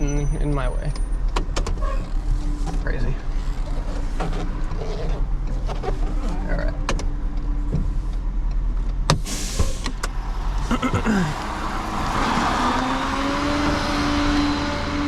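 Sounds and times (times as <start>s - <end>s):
vehicle engine running: 9.9s - 15.0s.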